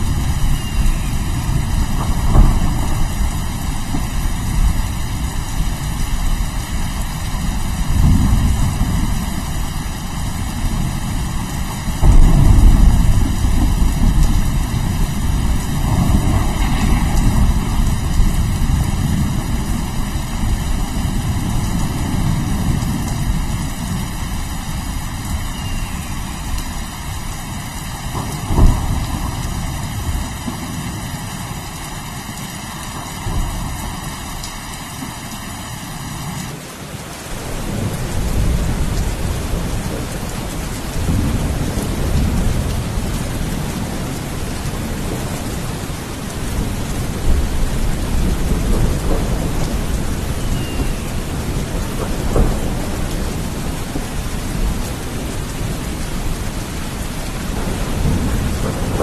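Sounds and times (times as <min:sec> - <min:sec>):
rolling thunder rumble: 0:00.0 - 0:35.3, 0:37.4 - 0:59.0
steady rain: 0:00.0 - 0:59.0
sharp thunder clap: 0:00.8 - 0:04.8, 0:12.0 - 0:20.0, 0:28.2 - 0:30.7.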